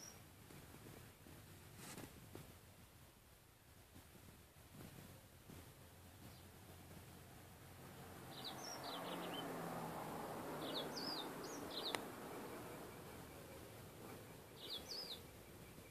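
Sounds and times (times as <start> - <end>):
bird chirping: 0.0 - 0.2, 6.2 - 6.7, 8.2 - 15.9.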